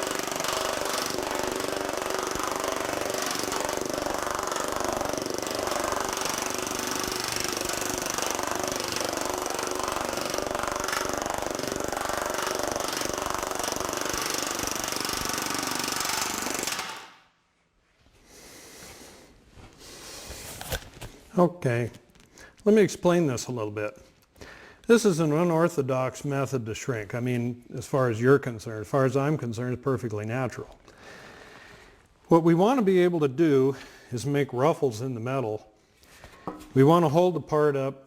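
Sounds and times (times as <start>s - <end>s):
pneumatic power hammer on sheet metal: 0.0s - 17.2s.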